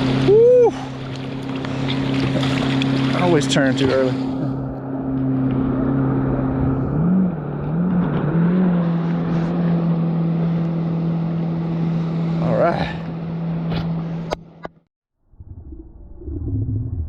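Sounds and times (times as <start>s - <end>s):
rushing water: 0.0s - 4.7s
motor engine humming: 0.0s - 14.9s.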